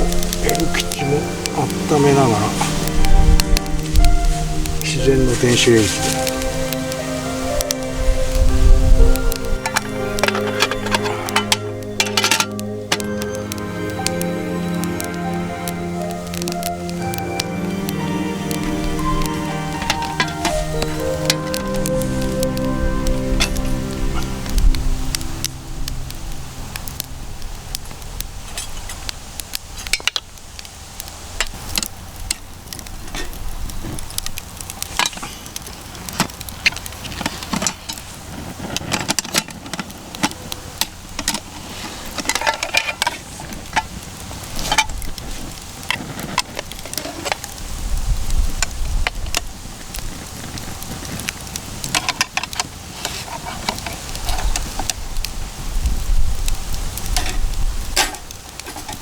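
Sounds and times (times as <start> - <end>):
food sizzling: 0.0 - 59.0
wood fire crackling: 0.0 - 59.0
metallic cookware clinks: 9.6 - 12.6.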